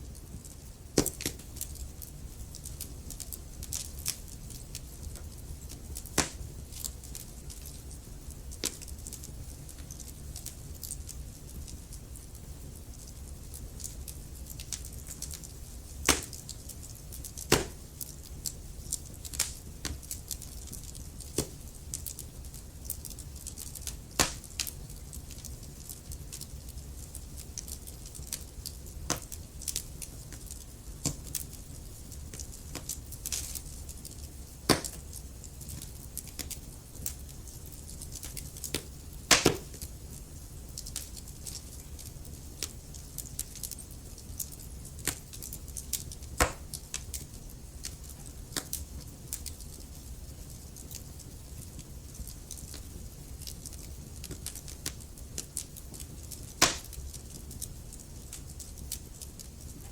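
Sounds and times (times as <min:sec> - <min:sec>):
logs crackling and popping in fire: 0:00.0 - 0:59.9
low rumble of flame: 0:00.0 - 0:59.9.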